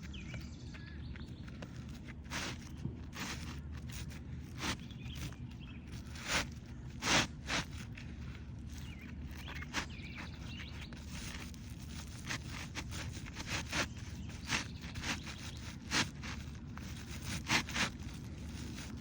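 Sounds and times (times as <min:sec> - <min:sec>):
roof shingle scraping: 0:00.0 - 0:19.0.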